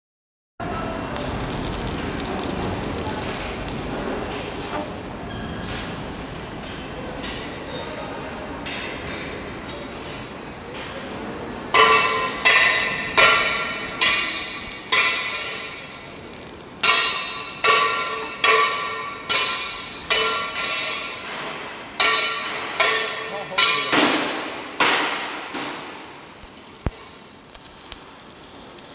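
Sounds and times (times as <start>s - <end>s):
welding arc hissing: 1.1s - 5.2s, 11.8s - 21.2s, 21.8s - 28.9s
hammer striking steel plate: 11.8s - 16.1s, 16.8s - 25.9s.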